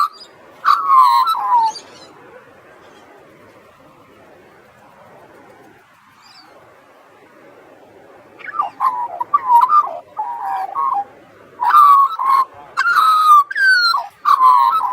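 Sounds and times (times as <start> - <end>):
magpie warbling: 0.0 - 3.1, 8.4 - 14.9
faint background hiss: 0.0 - 14.9.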